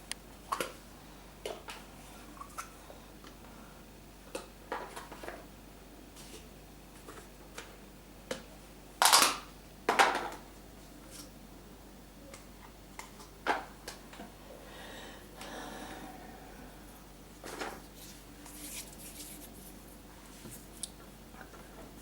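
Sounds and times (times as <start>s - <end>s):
scrapes or rustles on tabletop: 17.4s - 20.8s.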